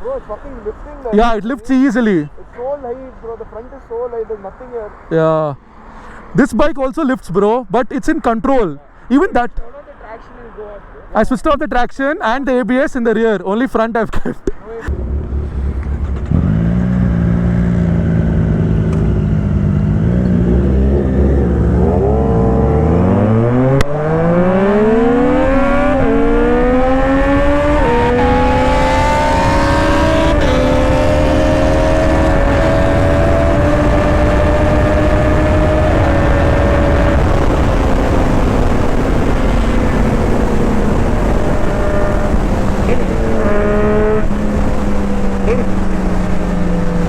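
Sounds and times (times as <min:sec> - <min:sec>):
motorcycle engine accelerating: 0:14.9 - 0:47.0
wind rush: 0:19.6 - 0:47.0.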